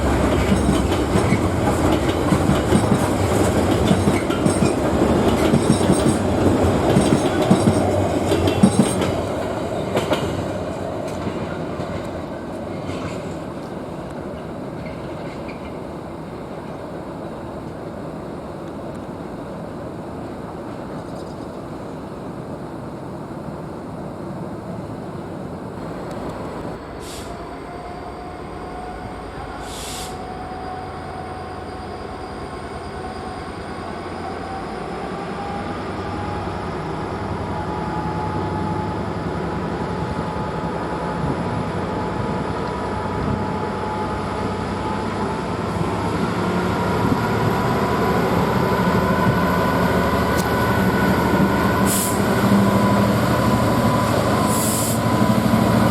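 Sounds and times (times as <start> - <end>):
train approaching: 0.0 - 55.9
train whine rising in pitch: 26.4 - 55.9.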